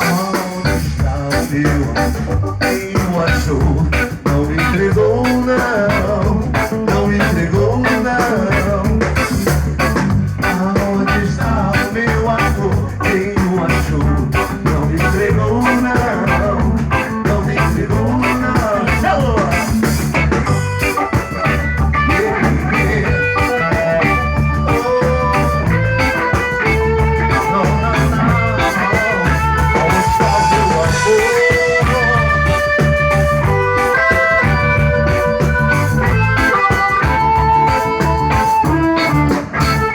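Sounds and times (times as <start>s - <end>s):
band playing reggae: 0.0s - 39.9s
repeating bass line: 0.0s - 39.9s
lead guitar held notes: 14.2s - 39.9s.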